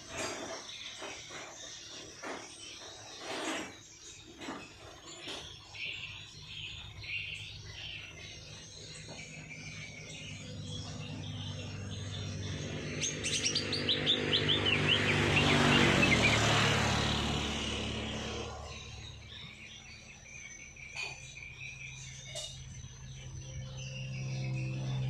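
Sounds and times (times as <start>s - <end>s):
songbirds chirping: 0.0s - 25.0s
rushing sound with low hum: 10.4s - 19.4s.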